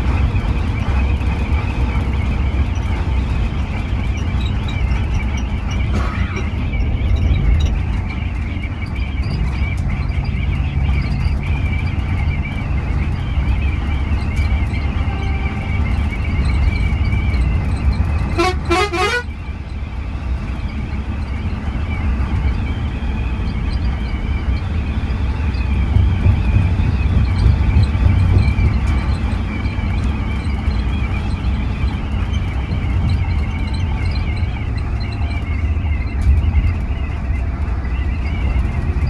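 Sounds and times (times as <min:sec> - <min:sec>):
bus engine and road rumble: 0:00.0 - 0:39.0
bus horn toot: 0:05.9 - 0:06.6, 0:14.8 - 0:16.1, 0:18.2 - 0:19.6.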